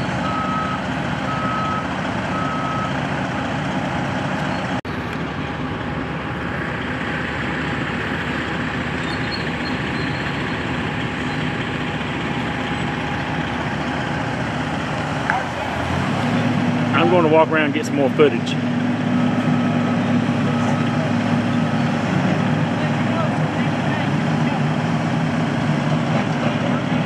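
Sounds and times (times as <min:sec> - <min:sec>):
reversing alarm beeping: 0:00.0 - 0:03.5, 0:19.1 - 0:21.2
heavy truck engine running: 0:00.0 - 0:27.0.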